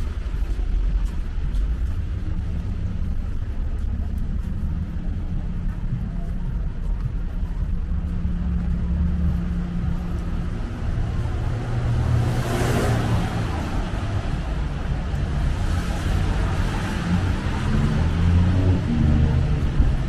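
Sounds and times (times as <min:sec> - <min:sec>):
traffic rumble: 0:00.0 - 0:20.0
car passing by: 0:10.7 - 0:20.0.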